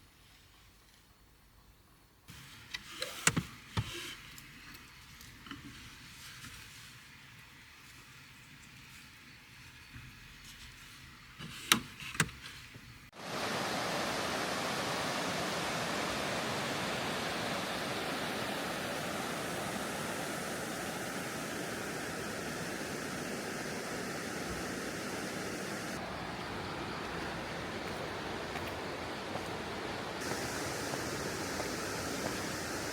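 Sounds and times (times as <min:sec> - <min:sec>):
steady rushing water: 0:13.1 - 0:32.9.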